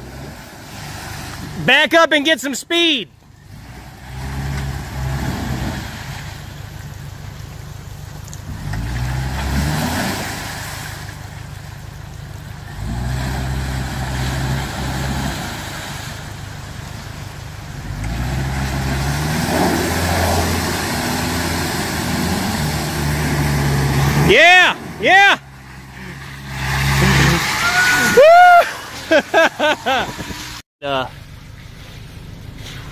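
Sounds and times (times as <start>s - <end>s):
engine revving: 3.4s - 6.6s, 8.4s - 11.2s, 12.7s - 17.0s, 17.6s - 30.6s.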